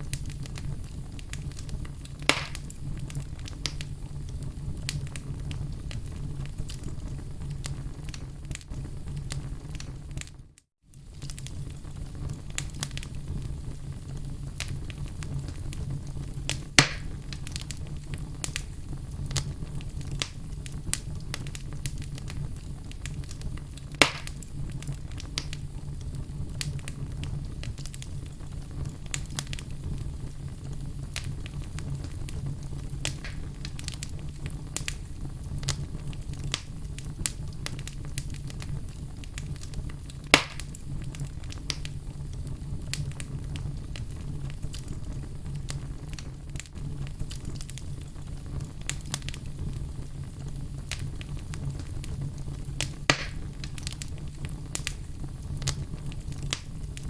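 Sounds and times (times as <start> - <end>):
loud fire pops: 0.0 - 57.0
wood fire crackling: 0.0 - 57.0.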